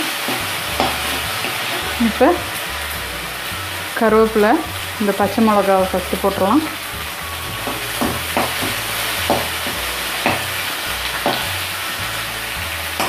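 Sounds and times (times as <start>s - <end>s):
metal ladle striking pan: 0.0s - 2.2s, 7.4s - 11.6s
leaves sizzling in hot oil: 0.0s - 13.0s.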